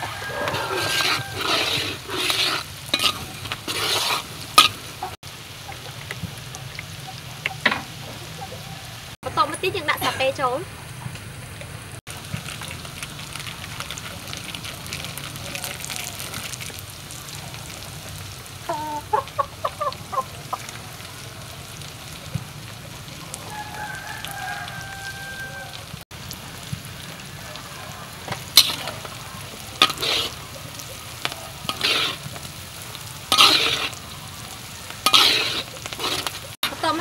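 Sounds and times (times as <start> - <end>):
metal spatula scraping wok: 0.0 - 5.2, 28.2 - 37.0
oil sizzling in a wok: 0.0 - 37.0
chicken clucking: 18.7 - 20.6.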